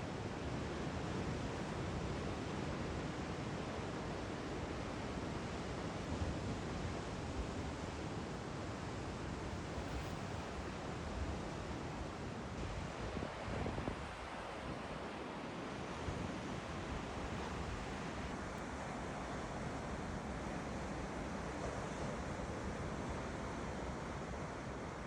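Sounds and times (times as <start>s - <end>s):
ocean surf: 1.6s - 25.0s
wind noise: 9.3s - 15.1s.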